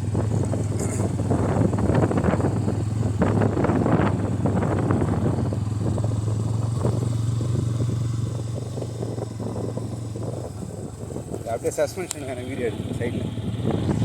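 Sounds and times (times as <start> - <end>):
motorcycle engine droning: 0.0 - 14.0.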